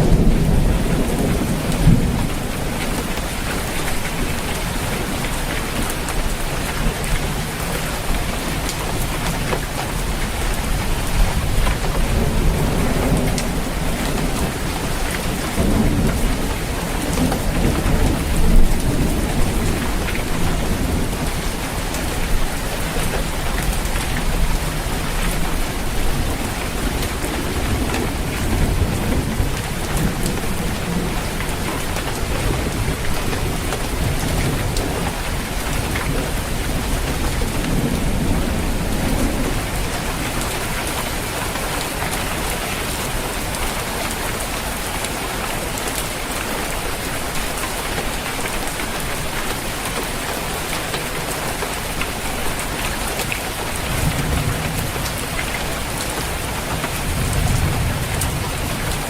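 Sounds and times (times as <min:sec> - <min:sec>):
thunder rumbling: 0:00.0 - 0:06.1, 0:09.4 - 0:43.6, 0:52.4 - 0:59.0
rain on a roof: 0:00.0 - 0:59.0.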